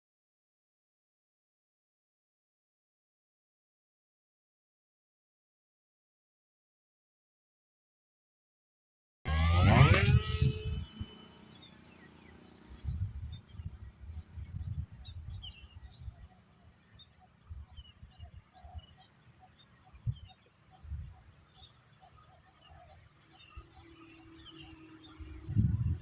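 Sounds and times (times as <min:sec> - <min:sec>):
wind buffeting microphone: 0:09.7 - 0:11.2, 0:12.7 - 0:16.2, 0:25.2 - 0:26.0.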